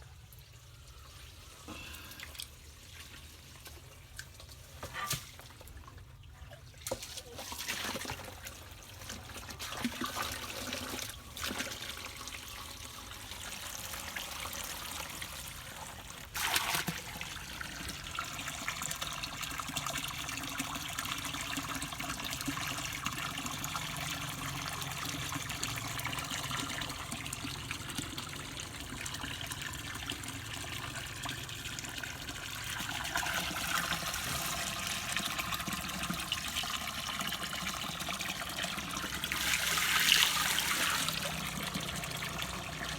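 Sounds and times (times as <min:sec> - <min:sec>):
water running and trickling: 0:00.2 - 0:42.9.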